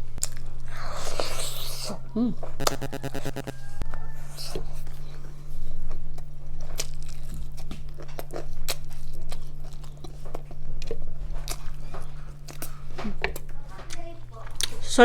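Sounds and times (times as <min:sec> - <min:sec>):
crunching fried chicken: 0:05.3 - 0:15.0
wet chewing: 0:06.1 - 0:14.8.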